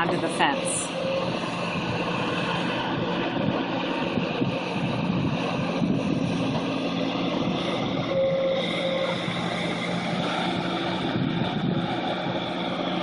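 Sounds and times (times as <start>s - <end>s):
tractor engine running: 0.0s - 13.0s
wind on microphone: 0.0s - 13.0s.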